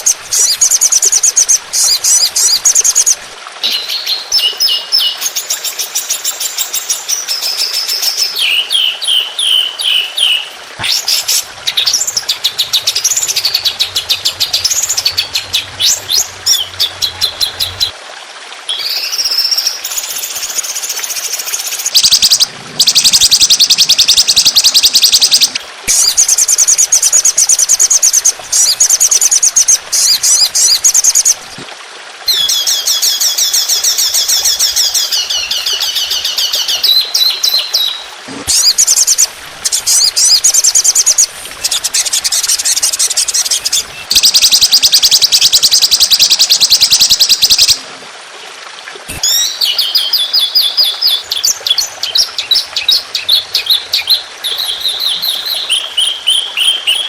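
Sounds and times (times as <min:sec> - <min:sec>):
songbird rapid high-pitched song: 0:18.7 - 0:31.4, 0:32.3 - 0:47.8, 0:49.1 - 0:57.0.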